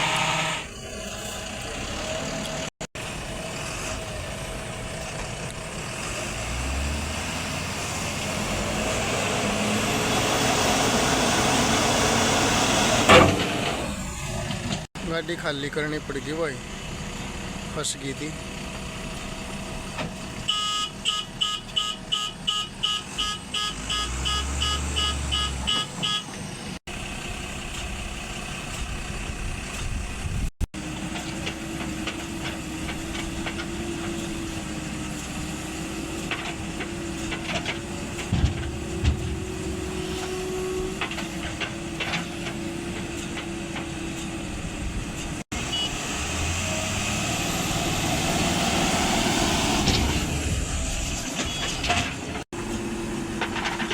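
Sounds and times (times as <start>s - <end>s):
heavy vehicle engines running: 0.0s - 53.9s
reversing alarm beeping: 20.5s - 26.3s, 45.7s - 46.0s.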